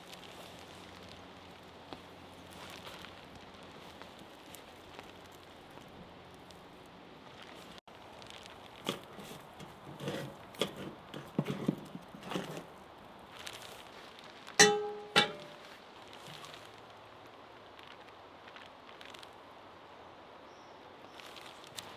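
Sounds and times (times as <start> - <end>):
knocks of cooking tools: 8.9 - 12.6, 14.6 - 15.6
sharp metallic clanks: 8.9 - 12.7, 14.6 - 15.7.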